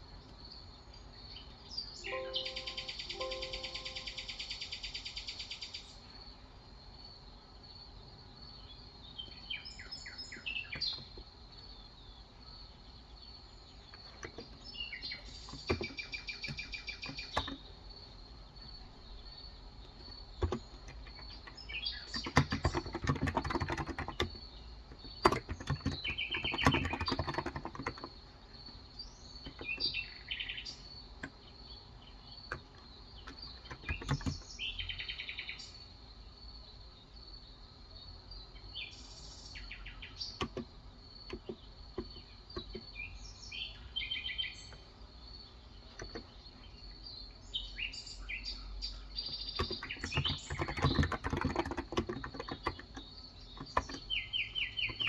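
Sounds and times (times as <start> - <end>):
small birds chirping: 0.0 - 55.0
typing on a keyboard: 15.5 - 17.8, 19.8 - 28.2, 29.4 - 30.0, 32.5 - 34.4, 40.4 - 42.9, 46.0 - 46.3, 49.3 - 55.0.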